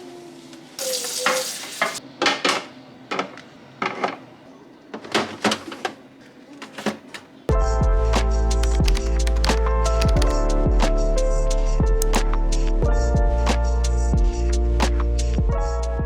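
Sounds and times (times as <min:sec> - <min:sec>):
music: 0:07.5 - 0:16.0.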